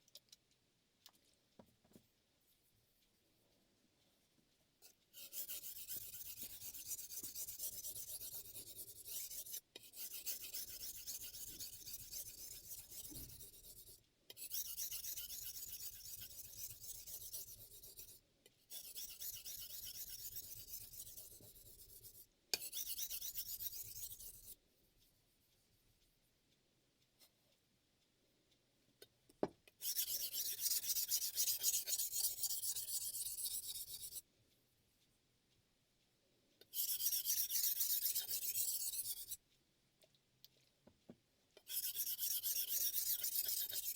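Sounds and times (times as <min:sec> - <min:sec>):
knife scraping on whetstone: 0:05.2 - 0:13.8, 0:14.4 - 0:18.0, 0:29.8 - 0:34.2, 0:36.8 - 0:39.4, 0:41.7 - 0:43.9.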